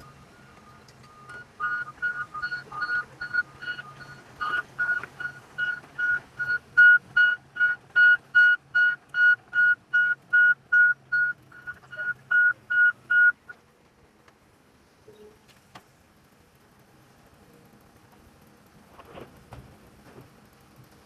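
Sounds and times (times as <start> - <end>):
rapid high beeps: 0.0 - 13.5.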